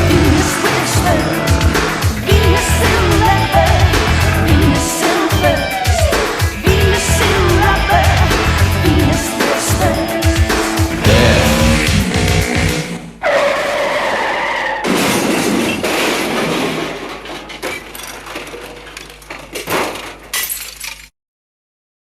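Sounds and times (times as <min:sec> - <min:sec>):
music: 0:00.0 - 0:13.1
loud crash: 0:11.0 - 0:12.8
tyre screech: 0:11.0 - 0:14.9
glass shattering: 0:15.0 - 0:21.1
debris rattling: 0:15.1 - 0:21.1.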